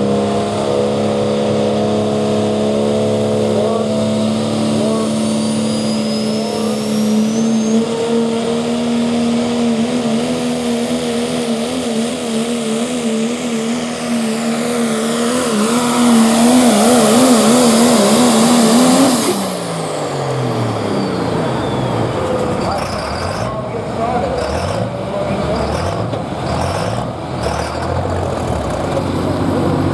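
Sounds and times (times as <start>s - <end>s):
pickup truck engine at full throttle: 0.0s - 29.9s.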